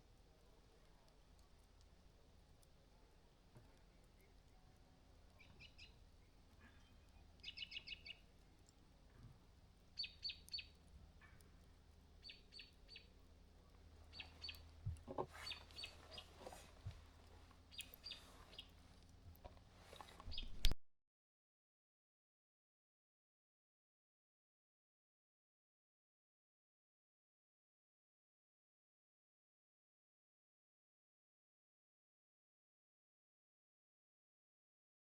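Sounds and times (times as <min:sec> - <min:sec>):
bird chirping: 0:05.3 - 0:08.5, 0:09.9 - 0:18.9, 0:19.8 - 0:20.7.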